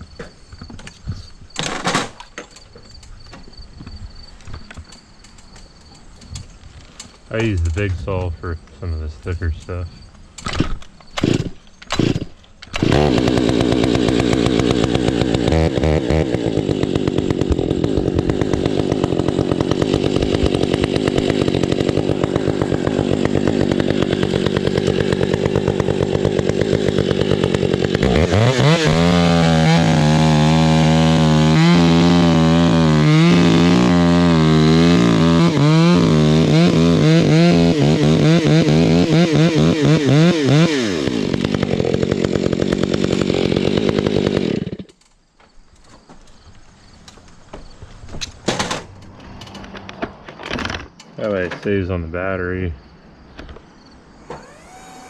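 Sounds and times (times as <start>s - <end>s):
chainsaw cutting wood: 10.4s - 45.1s, 54.2s - 55.0s.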